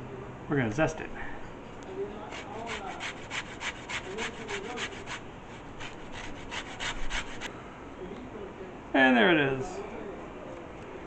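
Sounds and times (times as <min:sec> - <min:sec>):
zester rasping on lemon peel: 0:02.2 - 0:07.5.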